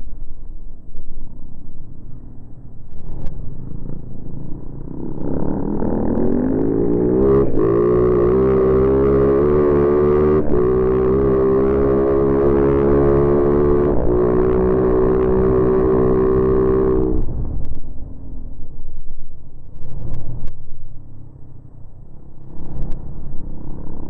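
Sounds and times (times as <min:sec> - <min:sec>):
wind and tyres rumbling: 0:00.0 - 0:24.0
dirt bike engine revving: 0:04.9 - 0:17.2.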